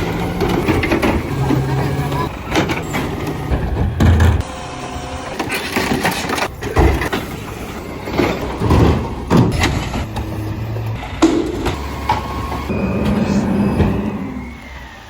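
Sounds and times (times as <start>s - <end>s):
heavy thumps and clanks: 0.0s - 4.5s, 5.8s - 13.2s
garbage truck engine running: 0.0s - 15.0s.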